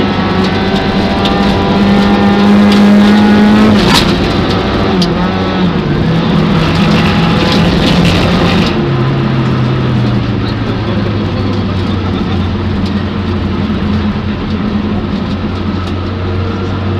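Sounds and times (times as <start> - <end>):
car engine running at speed: 0.0 - 16.9.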